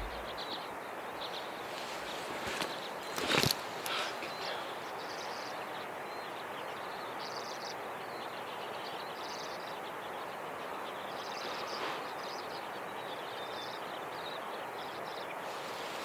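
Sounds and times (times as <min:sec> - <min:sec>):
outdoor hiss: 0:15.3 - 0:16.0.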